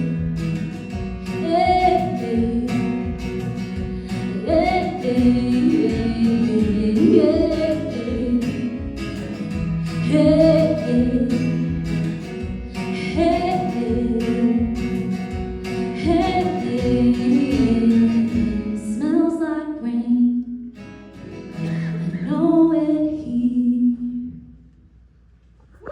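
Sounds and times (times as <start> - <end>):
strummed acoustic guitar: 0.0 - 19.4, 20.6 - 23.5.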